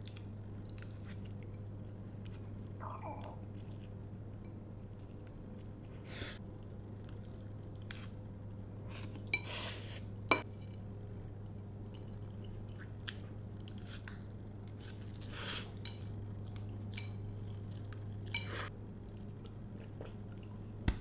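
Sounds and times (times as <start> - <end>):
chewing noodles: 0.0 - 9.3, 11.8 - 20.7
steady low hum: 0.0 - 21.0.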